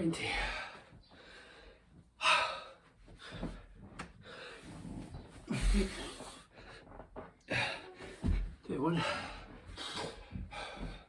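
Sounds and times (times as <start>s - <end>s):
man breathing hard: 0.2s - 6.8s, 9.0s - 11.0s.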